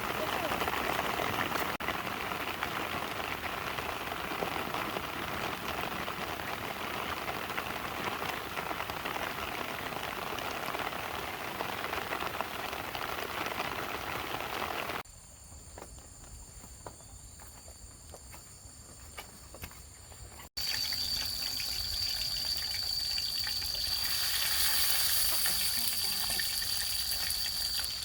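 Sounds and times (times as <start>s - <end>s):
heavy rain pattering: 0.0s - 15.0s, 20.6s - 28.0s
insects chirping: 15.1s - 28.0s.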